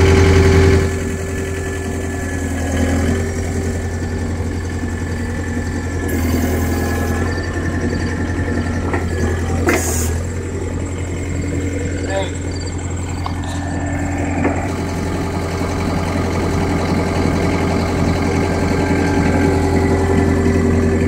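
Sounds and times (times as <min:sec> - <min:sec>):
skid steer engine humming: 0:00.0 - 0:21.0
brief rising whine: 0:01.9 - 0:10.3.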